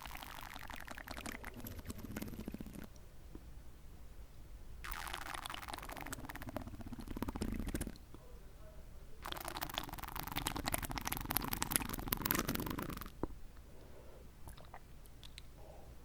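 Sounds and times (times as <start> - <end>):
slurping water in mouth: 0.0 - 3.0, 4.8 - 8.0, 9.2 - 13.2
faint mouth clicks: 11.1 - 15.6.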